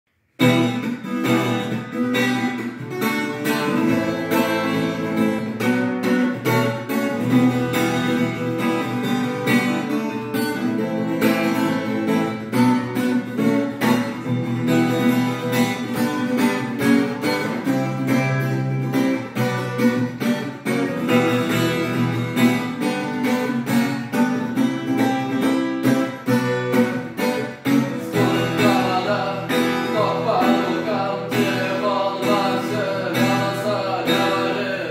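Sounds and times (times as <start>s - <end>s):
acoustic guitar strumming: 0.2s - 34.9s.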